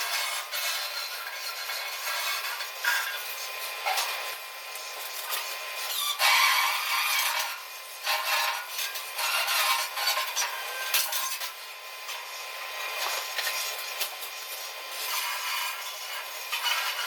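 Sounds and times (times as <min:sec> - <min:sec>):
tool rasping and scraping metal: 0:00.0 - 0:04.2, 0:05.0 - 0:11.6, 0:14.9 - 0:17.0.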